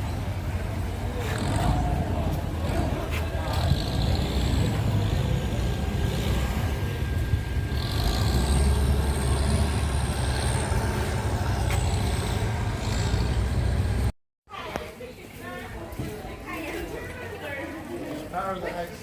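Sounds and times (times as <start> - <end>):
heavy engine rumbling: 0.0 - 14.2.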